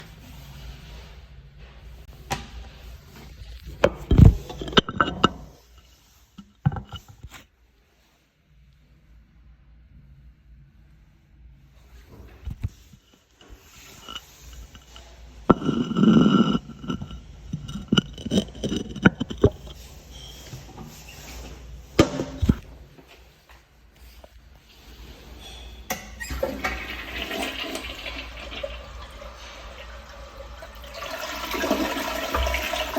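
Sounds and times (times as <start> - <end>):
toilet flush click: 25.9 - 32.9
water rushing through toilet bowl: 26.2 - 32.9.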